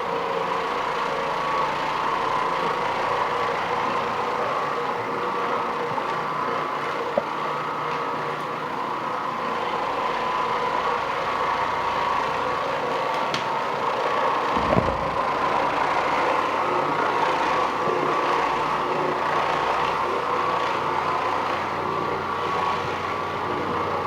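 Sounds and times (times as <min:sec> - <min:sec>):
floor machine motor humming: 0:00.0 - 0:24.0
low thump: 0:14.6 - 0:15.5.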